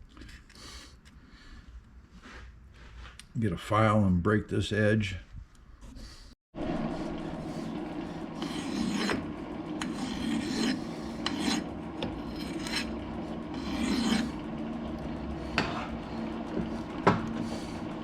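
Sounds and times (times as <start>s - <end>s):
lathe humming: 6.6s - 18.0s
file rasping against metal: 7.4s - 18.0s.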